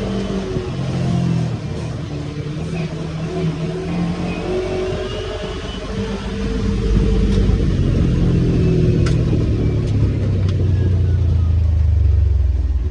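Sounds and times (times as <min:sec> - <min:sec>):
off-road vehicle engine running: 0:00.0 - 0:12.9.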